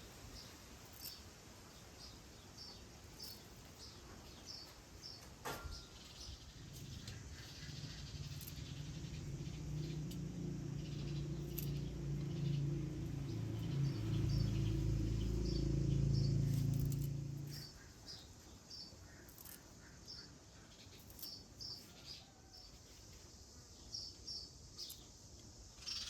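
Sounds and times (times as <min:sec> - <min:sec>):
low steady hum: 0:00.0 - 0:19.6
small birds chirping: 0:00.0 - 0:26.0.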